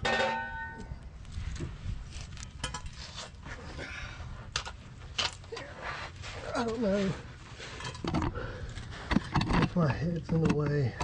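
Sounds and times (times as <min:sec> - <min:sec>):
metal exhaust parts clinking: 0:00.0 - 0:01.0.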